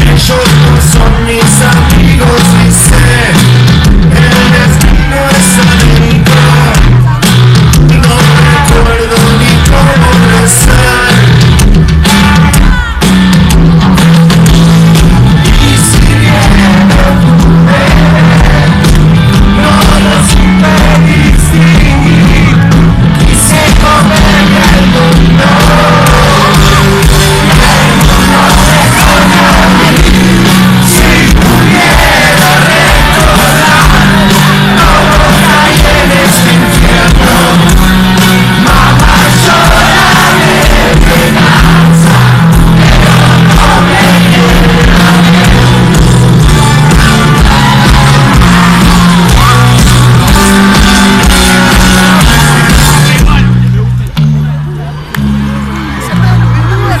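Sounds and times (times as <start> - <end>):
person singing: 0.0 - 11.5, 12.2 - 13.1, 15.4 - 53.4
live rock band playing: 0.0 - 57.0
crowd shouting: 12.0 - 13.3, 15.4 - 53.4.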